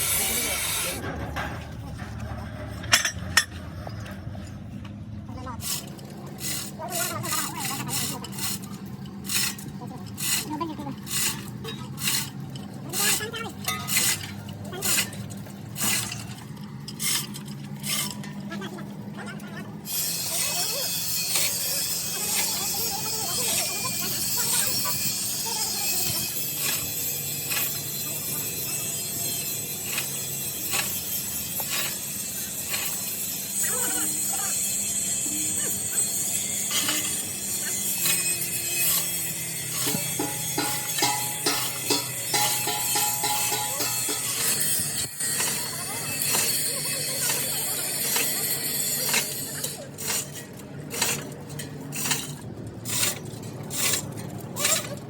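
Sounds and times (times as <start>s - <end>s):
rasping strokes on metal: 0.0s - 1.0s, 5.6s - 18.4s, 19.8s - 55.0s
workshop machine hissing: 0.0s - 1.0s, 5.6s - 18.5s, 19.7s - 55.0s
metallic clinking and scraping: 5.6s - 18.6s, 19.8s - 55.0s.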